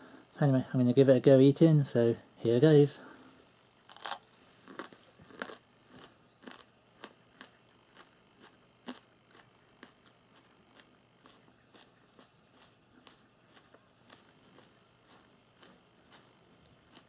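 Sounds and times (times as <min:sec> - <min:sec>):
crunchy chewing: 0:03.8 - 0:17.0.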